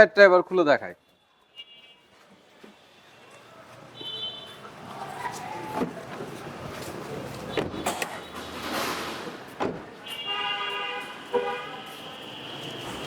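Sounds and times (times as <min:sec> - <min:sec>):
car horn: 0:01.0 - 0:02.1, 0:04.0 - 0:04.6, 0:10.0 - 0:13.0.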